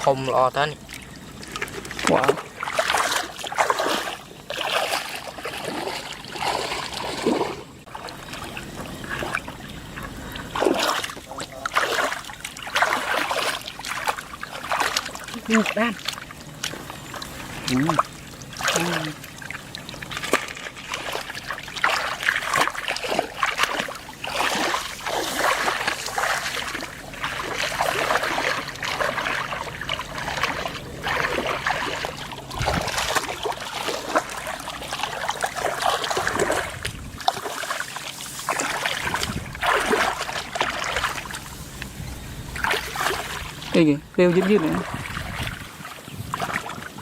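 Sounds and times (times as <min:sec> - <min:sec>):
water splashing and sloshing: 0:00.0 - 0:47.0.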